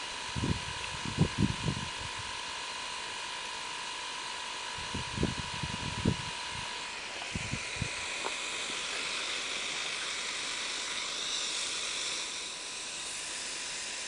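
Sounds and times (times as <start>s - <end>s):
compressed air hissing: 5.2s - 14.0s.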